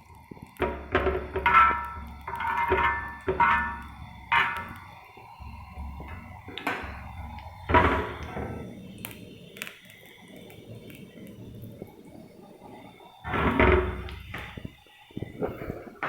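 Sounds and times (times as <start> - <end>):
metal kitchenware clinking: 0.6 - 5.0, 5.8 - 8.7, 13.3 - 14.6.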